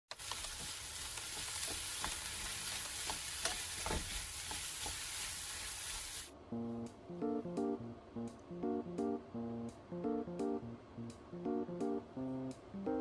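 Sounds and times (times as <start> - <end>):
vegetables sizzling in pan: 0.1 - 6.3
spatula scraping and knocking pan: 0.5 - 5.2.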